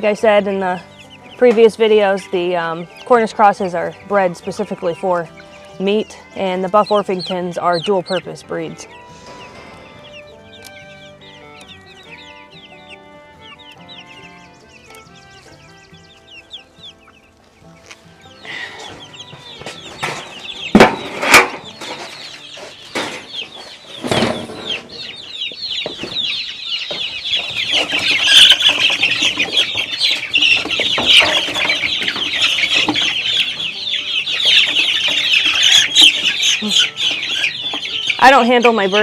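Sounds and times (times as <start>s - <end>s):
chicks peeping in alarm: 0.0s - 39.0s
sharp knocks: 19.6s - 22.2s.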